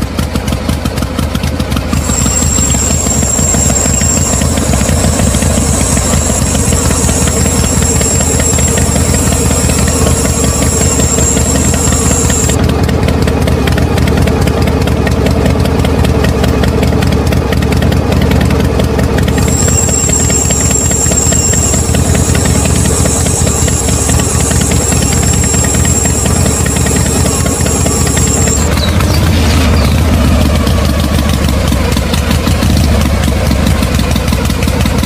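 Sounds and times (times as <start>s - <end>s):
thin high whine: 1.9s - 12.6s, 19.3s - 31.4s
small motor rattling: 1.9s - 12.9s, 19.0s - 35.0s.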